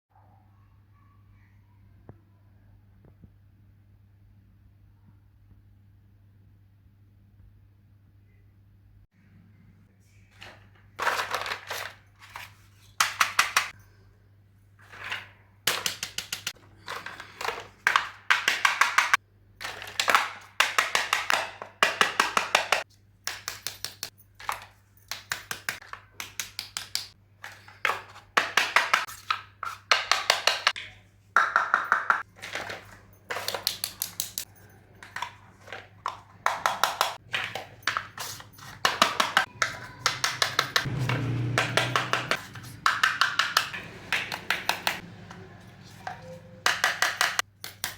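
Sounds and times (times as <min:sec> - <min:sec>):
plastic toy pieces clicking: 0:33.3 - 0:35.2, 0:36.5 - 0:40.9.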